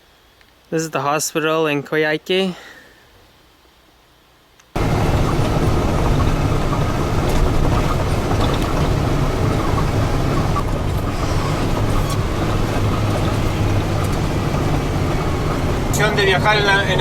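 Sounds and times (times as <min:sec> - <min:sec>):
vehicle engine and road noise: 0:04.8 - 0:17.0.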